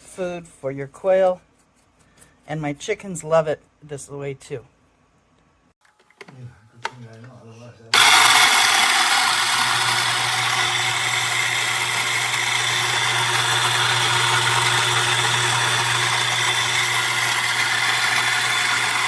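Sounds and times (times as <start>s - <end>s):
coffee grinder motor whirring: 8.0s - 19.0s.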